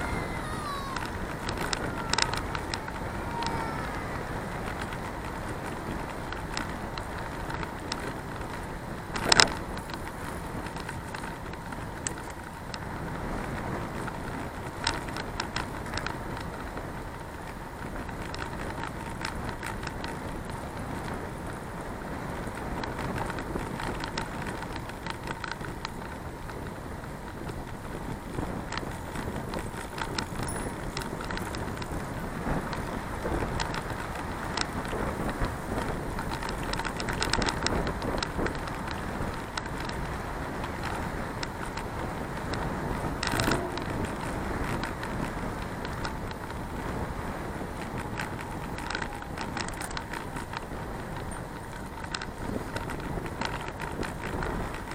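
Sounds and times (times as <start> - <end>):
bicycle rolling: 0.0 - 54.9
small sharp clicks and rattles: 0.0 - 54.9
wind noise: 0.0 - 54.9.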